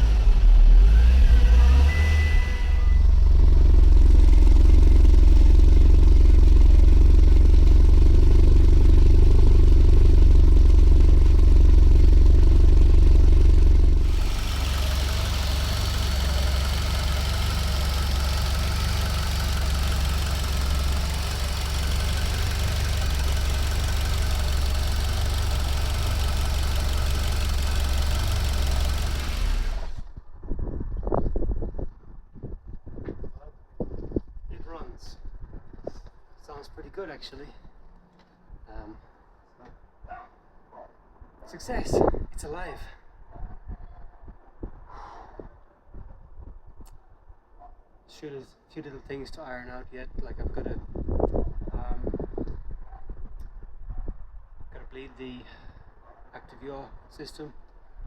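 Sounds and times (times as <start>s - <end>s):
car engine running: 0.0s - 30.2s.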